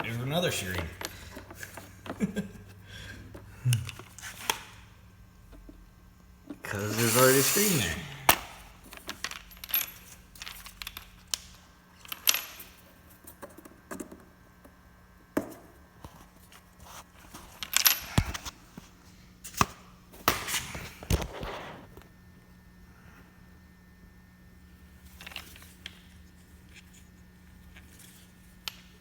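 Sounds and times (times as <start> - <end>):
metal parts clicking and clinking: 0.0 - 2.2, 6.8 - 13.4.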